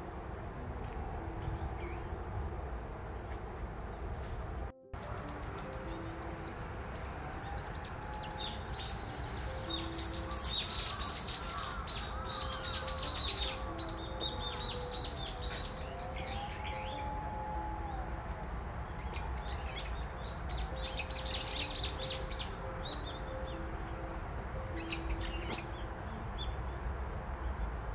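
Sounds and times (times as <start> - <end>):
quiet music with held notes: 0.0 - 27.9
small birds chirping: 5.0 - 17.2, 18.9 - 26.6.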